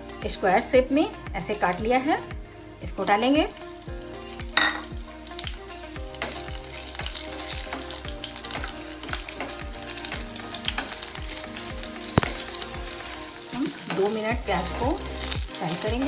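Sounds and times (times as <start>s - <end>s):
onions sizzling in oil: 2.9s - 16.0s
sharp knock: 12.2s - 12.4s.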